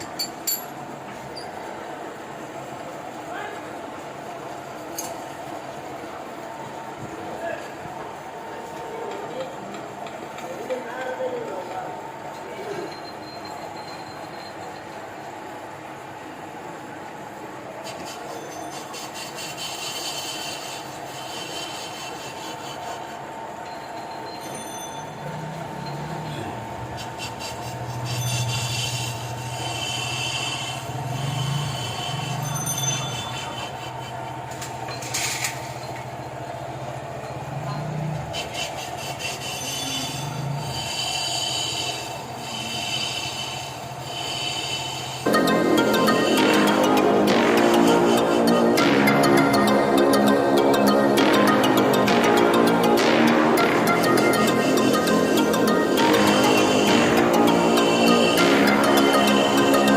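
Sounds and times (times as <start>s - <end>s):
road noise: 0.0s - 59.9s
high-pitched scraping noise: 17.8s - 36.1s, 37.3s - 59.9s
loud electronic music: 45.3s - 59.9s.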